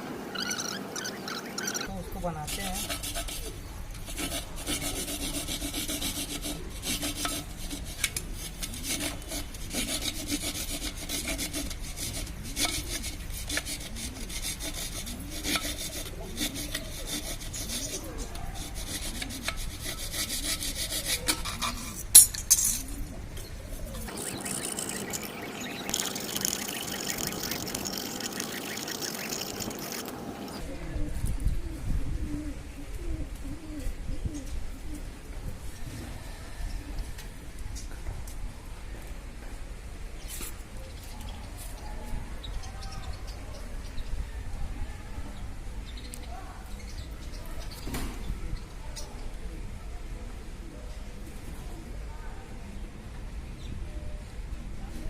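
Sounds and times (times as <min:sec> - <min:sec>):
hand tool scraping clay pot: 0:01.6 - 0:23.0, 0:23.7 - 0:30.6.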